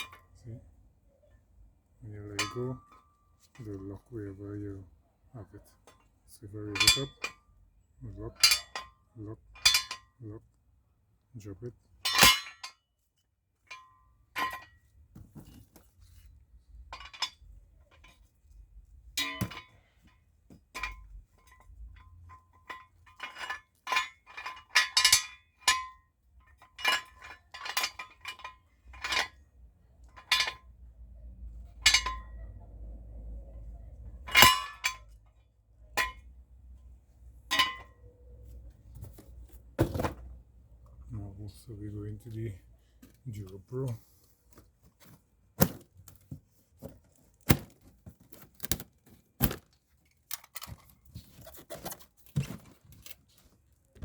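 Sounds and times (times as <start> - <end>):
metal jack stand clinking: 2.3 - 3.7, 5.8 - 7.5, 8.1 - 10.2, 12.0 - 12.8, 13.7 - 14.9, 16.8 - 18.3, 19.2 - 29.4, 30.0 - 30.7, 31.7 - 32.5, 34.2 - 35.2, 36.0 - 36.3, 37.5 - 38.1, 47.4 - 53.2.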